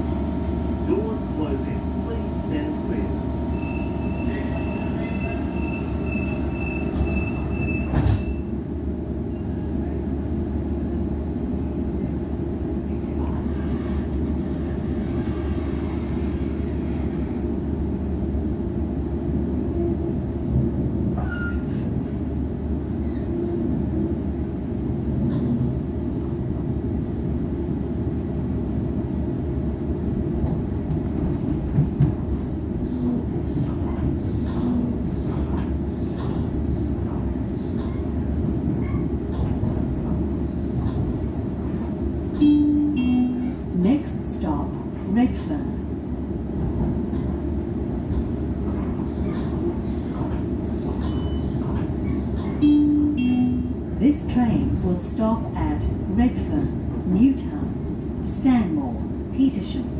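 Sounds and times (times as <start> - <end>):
train wheels rumbling: 0.0 - 59.9.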